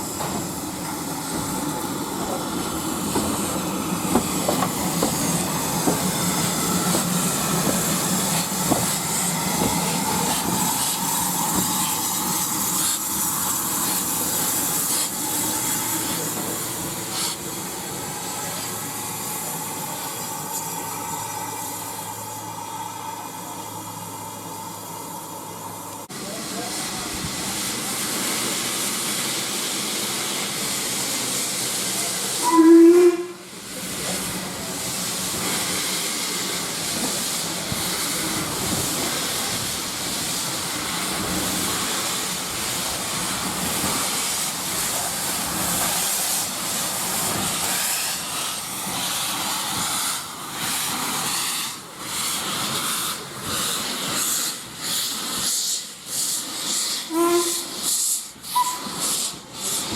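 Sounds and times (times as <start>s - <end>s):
steam locomotive hissing: 0.0s - 59.9s
locomotive whistle toot: 32.4s - 33.5s, 57.1s - 57.8s, 58.5s - 59.0s.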